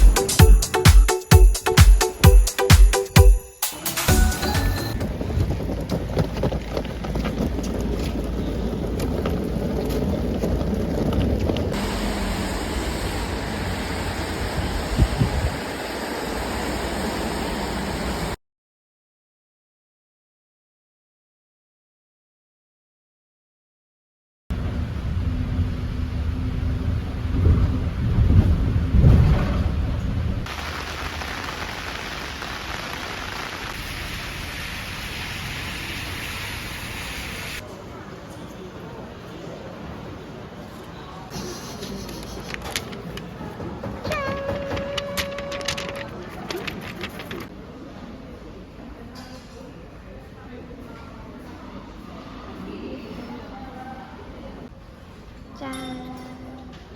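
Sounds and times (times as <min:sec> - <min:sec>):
wind rumbling on microphone: 0:05.0 - 0:11.9, 0:13.8 - 0:15.8, 0:24.6 - 0:30.5
thunder rumble: 0:07.5 - 0:18.4, 0:24.5 - 0:37.1
heavy rain hissing: 0:11.8 - 0:18.4, 0:30.5 - 0:37.6.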